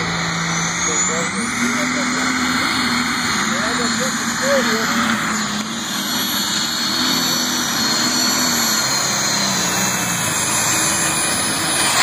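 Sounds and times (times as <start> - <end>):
engine running hard under load: 0.0 - 12.0.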